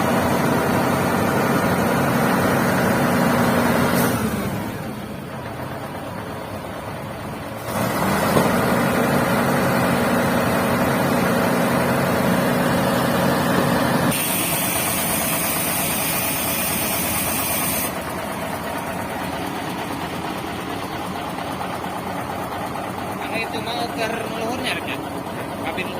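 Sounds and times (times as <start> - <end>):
diesel truck engine running: 0.0 - 25.9
air hissing: 14.1 - 18.0.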